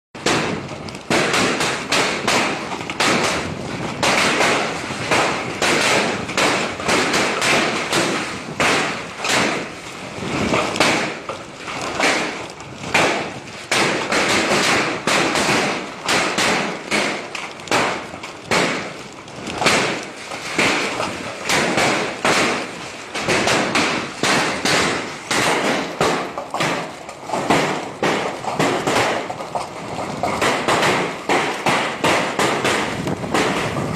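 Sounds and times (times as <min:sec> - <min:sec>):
hailstones clattering on hard surface: 0:00.2 - 0:33.9.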